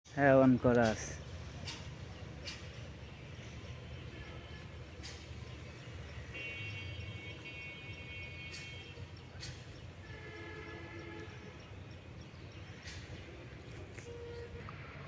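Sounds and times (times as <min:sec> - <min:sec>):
long horn-like tones: 0:02.9 - 0:05.0, 0:06.1 - 0:09.2, 0:10.0 - 0:11.8, 0:13.8 - 0:15.0.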